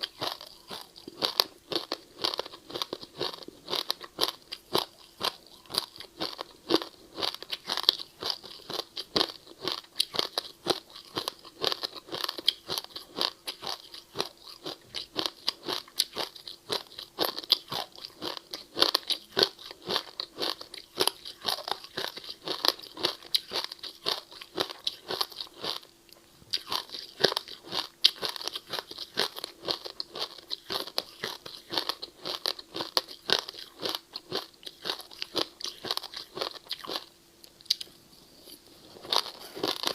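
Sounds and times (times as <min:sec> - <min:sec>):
person crunching ice: 0:39.0 - 0:39.9.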